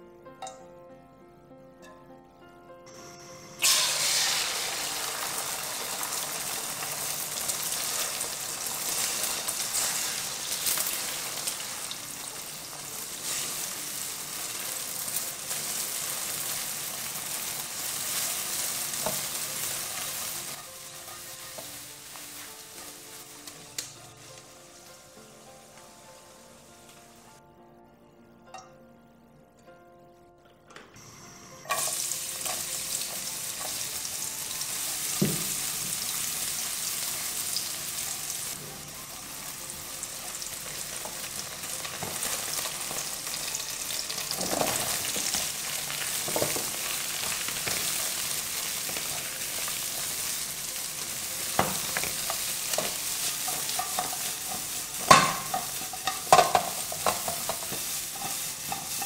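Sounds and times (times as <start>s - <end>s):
oil sizzling in wok: 2.9s - 27.4s, 31.0s - 59.0s
spatula scraping pan: 52.8s - 59.0s.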